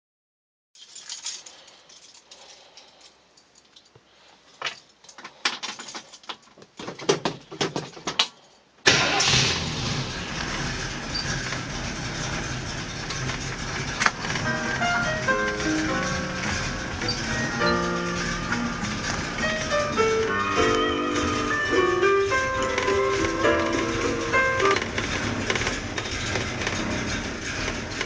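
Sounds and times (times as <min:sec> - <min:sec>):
clicks and rattles: 0:04.6 - 0:08.5, 0:11.1 - 0:28.0
car engine starting and idling: 0:08.8 - 0:28.0.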